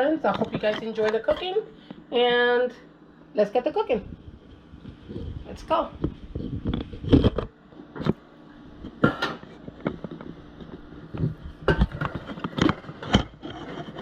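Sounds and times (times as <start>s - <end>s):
objects knocking and clattering: 8.9s - 14.0s.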